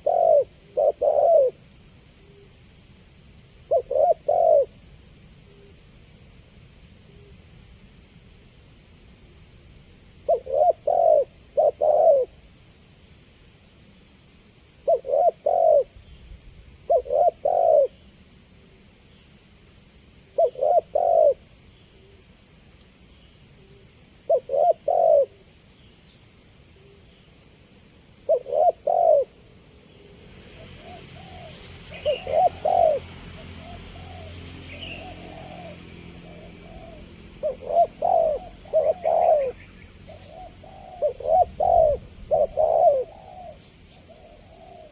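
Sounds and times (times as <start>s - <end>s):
dove cooing: 0.0s - 1.7s, 3.6s - 4.8s, 10.2s - 12.4s, 14.8s - 15.9s, 16.9s - 18.0s, 20.4s - 21.5s, 24.3s - 25.4s, 28.2s - 29.4s, 30.6s - 44.9s
faint dove coos in background: 0.0s - 2.5s, 3.6s - 4.8s, 10.2s - 12.5s, 14.8s - 16.0s, 16.8s - 18.1s, 20.3s - 22.2s, 23.6s - 25.5s, 28.2s - 29.5s, 30.6s - 44.9s
steady high hiss: 11.2s - 44.9s.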